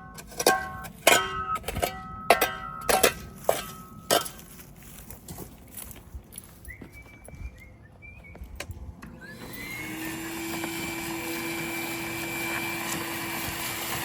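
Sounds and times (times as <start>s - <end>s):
motor spinning up and humming: 9.0s - 14.0s.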